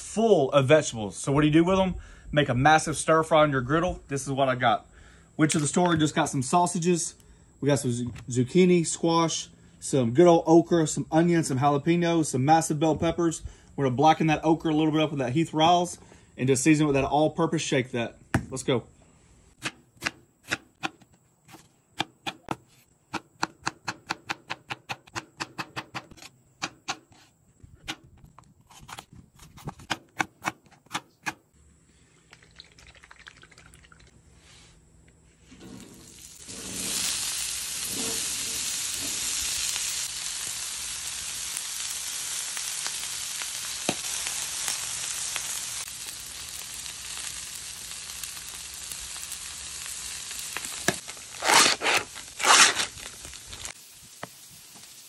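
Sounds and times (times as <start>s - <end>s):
okra sizzling on griddle: 34.3s - 55.0s.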